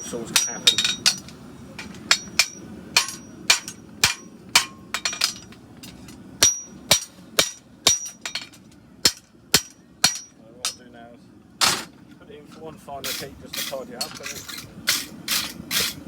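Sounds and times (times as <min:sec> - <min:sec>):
hammer striking horseshoe on anvil: 0:00.0 - 0:05.5, 0:06.4 - 0:08.5, 0:09.1 - 0:10.8.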